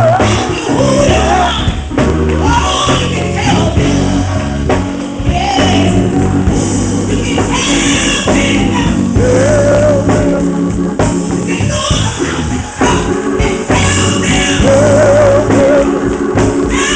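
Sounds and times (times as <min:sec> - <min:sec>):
band with bass guitar drums: 0:00.0 - 0:16.9.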